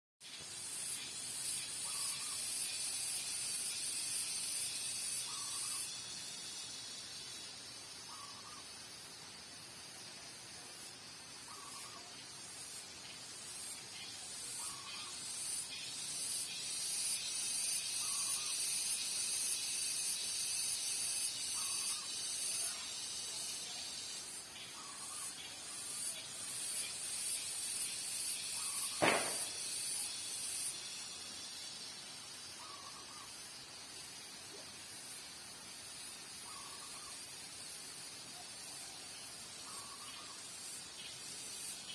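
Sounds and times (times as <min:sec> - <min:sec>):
cicadas buzzing: 0:00.2 - 0:41.9
sharp knock: 0:29.0 - 0:29.6.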